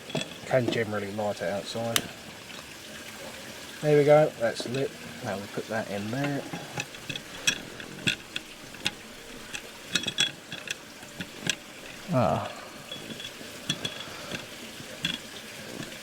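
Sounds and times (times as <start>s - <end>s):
metal clicks and clinks: 0.0s - 0.8s, 4.6s - 4.9s, 6.1s - 16.0s
gas burner hissing: 3.2s - 16.0s.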